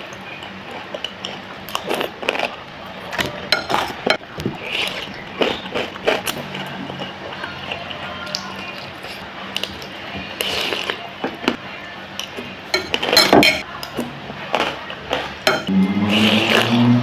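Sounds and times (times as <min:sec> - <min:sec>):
eating noises: 0:00.0 - 0:17.0
cutlery clinking against a bowl: 0:03.1 - 0:07.0, 0:12.2 - 0:15.7.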